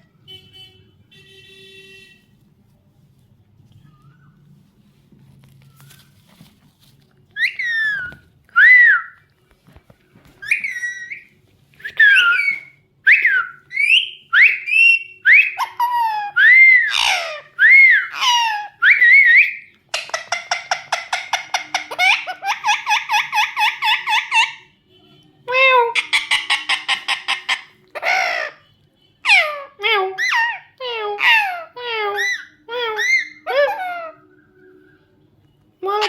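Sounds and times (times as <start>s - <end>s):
parakeet screeching whistles: 10.4s - 19.7s
parakeet rapid chattering: 19.9s - 24.6s, 25.8s - 28.6s.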